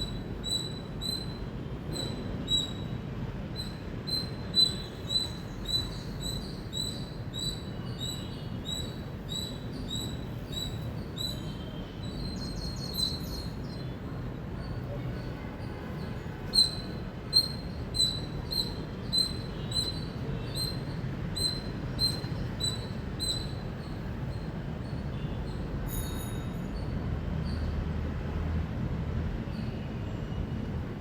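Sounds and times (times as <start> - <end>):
squirrel chirping: 0.0 - 2.9, 3.6 - 13.8, 16.5 - 25.3.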